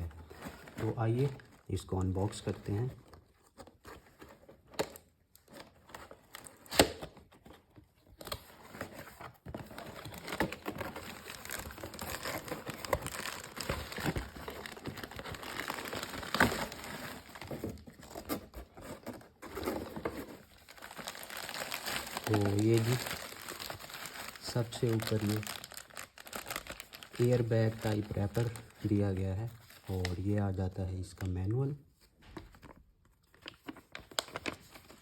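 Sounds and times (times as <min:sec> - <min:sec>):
plastic packaging crinkling: 0:04.9 - 0:30.4, 0:33.2 - 0:35.0.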